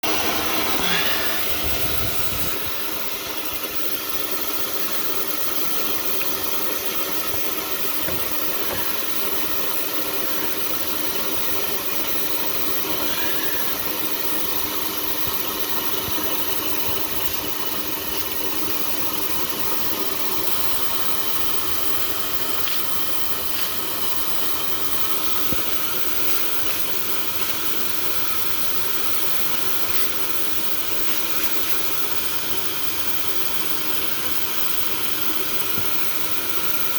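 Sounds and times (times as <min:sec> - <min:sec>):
rushing air: 0:00.0 - 0:03.0
blower motor whine: 0:00.0 - 0:36.9.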